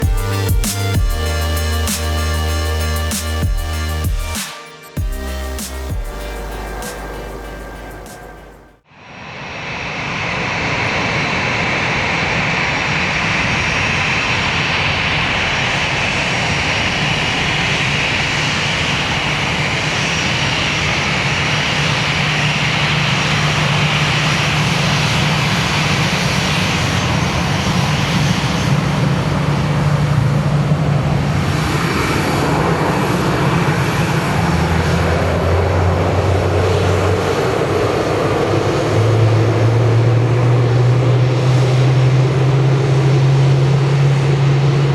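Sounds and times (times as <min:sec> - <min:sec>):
high fan whine: 0:00.0 - 0:04.4, 0:05.0 - 0:44.9
jet engines roaring: 0:00.0 - 0:44.9.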